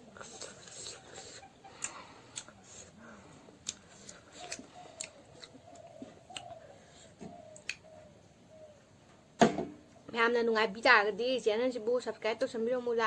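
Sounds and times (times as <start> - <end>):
meat being chewed: 0.0 - 7.9
wet mouth clicks and smacks: 0.2 - 2.9, 3.6 - 6.6, 7.6 - 7.8.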